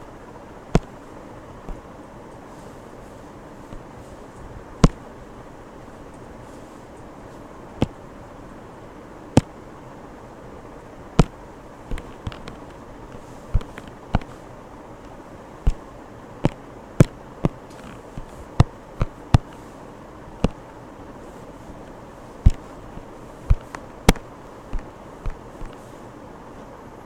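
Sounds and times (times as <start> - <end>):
steady low hiss: 0.0 - 27.0
sharp taps: 0.7 - 0.9, 22.4 - 22.7.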